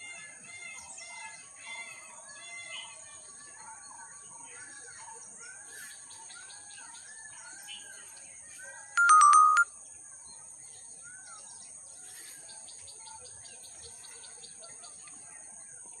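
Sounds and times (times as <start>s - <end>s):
electronic beep sequence: 9.0s - 9.7s.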